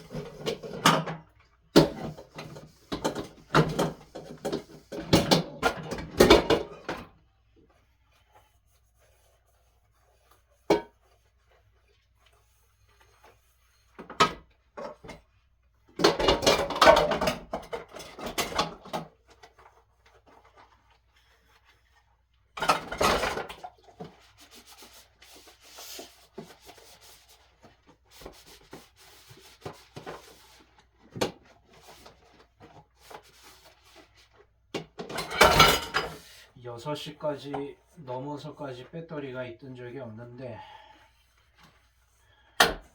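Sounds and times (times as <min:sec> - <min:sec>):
dishes scrubbing and clattering: 0:00.0 - 0:07.1, 0:15.9 - 0:19.7, 0:20.3 - 0:36.5.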